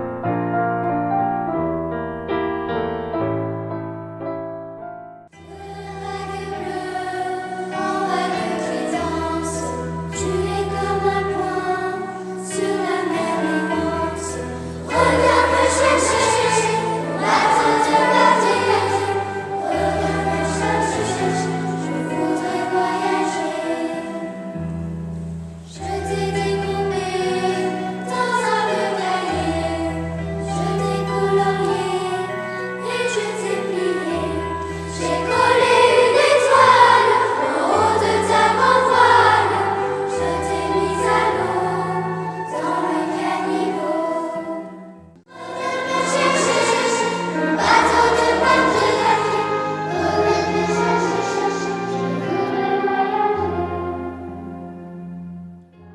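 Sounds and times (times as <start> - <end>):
choral singing: 5.3 - 24.8, 25.6 - 54.8.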